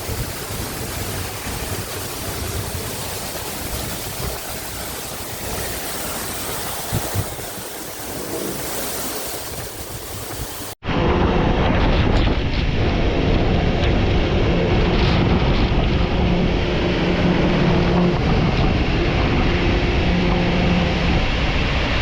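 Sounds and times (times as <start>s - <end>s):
boat engine humming: 0.0s - 10.8s
water rushing: 0.0s - 10.8s
wind noise on microphone: 0.0s - 22.0s.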